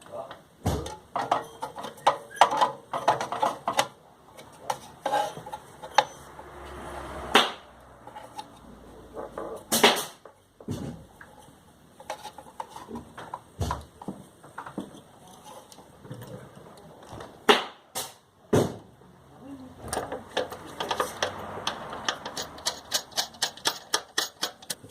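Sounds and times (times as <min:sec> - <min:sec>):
tools clicking and rattling: 0:19.9 - 0:24.9.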